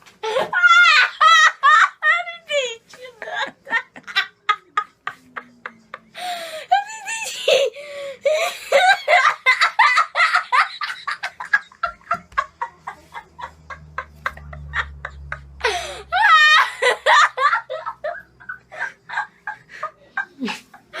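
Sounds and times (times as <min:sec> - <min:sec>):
people laughing heartily: 0:00.2 - 0:21.0
high-pitched laugh: 0:06.7 - 0:21.0.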